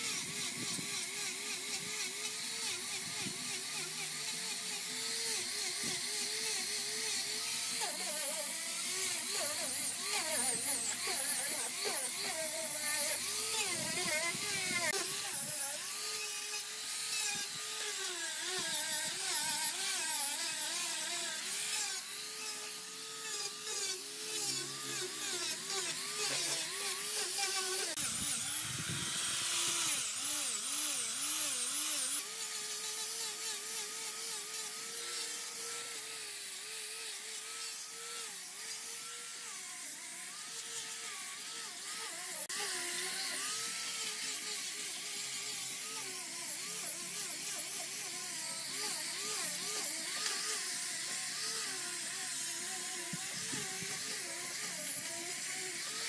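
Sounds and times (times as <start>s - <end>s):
small power tool motor running: 0.0s - 56.0s.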